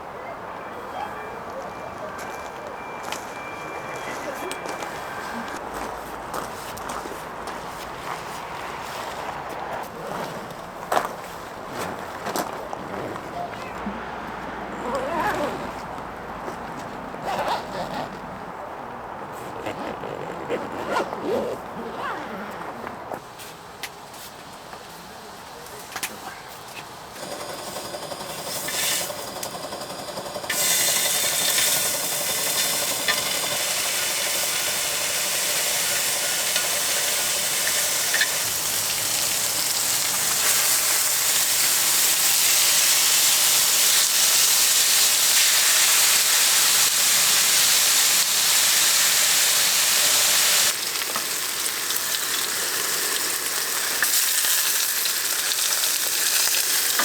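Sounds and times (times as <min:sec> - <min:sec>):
food sizzling in a hot pan: 0:32.5 - 0:57.0.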